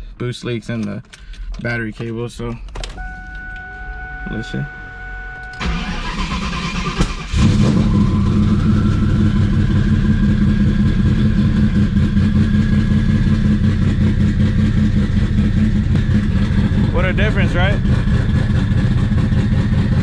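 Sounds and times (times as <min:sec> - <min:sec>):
car engine idling: 0:03.0 - 0:20.0
engine starter cranking: 0:05.5 - 0:08.1.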